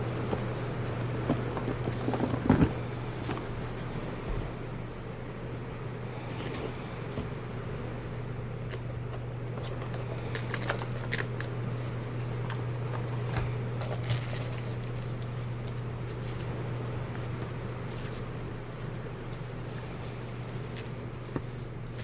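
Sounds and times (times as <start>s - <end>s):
case and packaging rustling: 0.2s - 4.0s, 9.6s - 11.4s, 12.4s - 16.5s.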